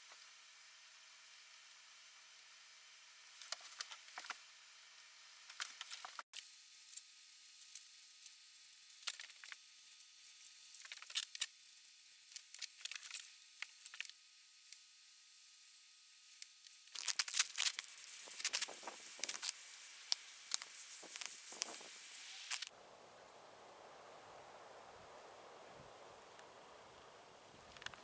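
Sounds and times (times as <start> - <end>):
steady hiss: 0.0 - 28.0
scraping and hissing with clicks: 3.3 - 4.5, 5.4 - 14.9, 16.3 - 22.7, 27.7 - 28.0.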